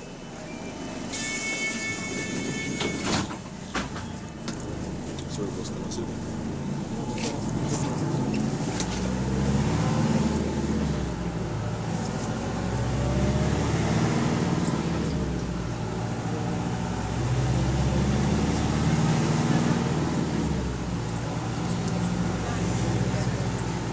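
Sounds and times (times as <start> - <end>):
bus diesel engine running: 0.0 - 23.9.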